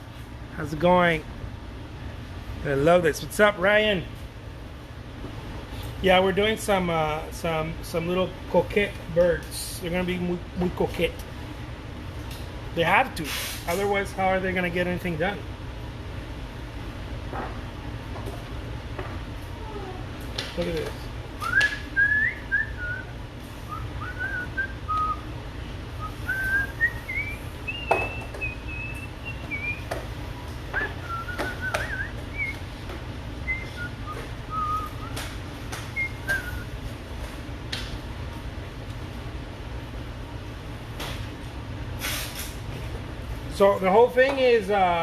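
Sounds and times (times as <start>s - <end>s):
low hum of room noise: 0.0s - 45.0s
person whistling: 21.4s - 23.1s, 23.7s - 25.2s, 26.0s - 29.9s, 30.8s - 32.6s, 33.5s - 35.2s, 36.0s - 36.7s.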